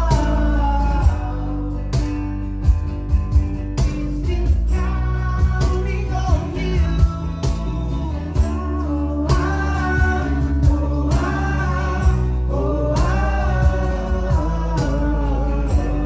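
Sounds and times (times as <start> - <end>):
person singing: 0.0 - 2.0, 3.8 - 16.0
acoustic guitars strumming: 0.0 - 16.0.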